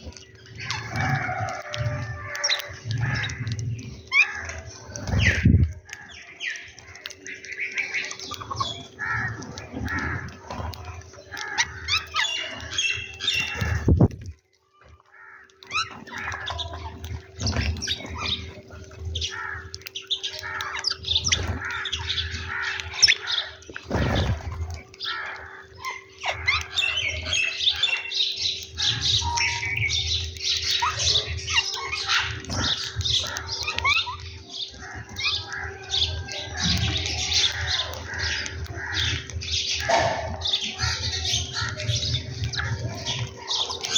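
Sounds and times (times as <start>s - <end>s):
birds chirping and squawking: 0.0s - 43.9s.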